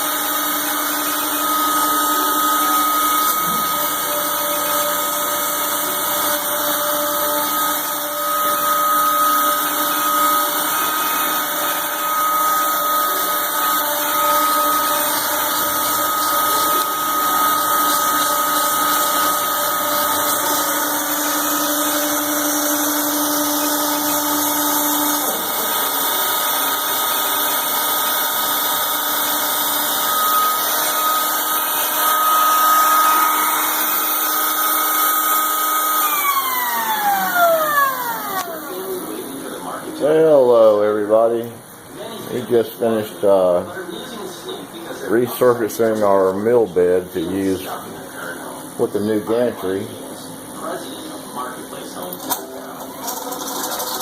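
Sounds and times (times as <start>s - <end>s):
cutter surfacing wood: 0.0s - 40.8s, 52.0s - 54.0s
cnc router spindle whining: 0.0s - 54.0s.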